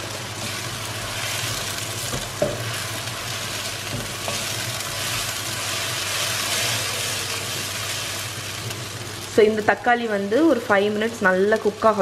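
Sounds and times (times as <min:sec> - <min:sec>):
tomato puree sizzling in a wok: 0:00.0 - 0:12.0
spatula tapping the pan: 0:02.1 - 0:02.7.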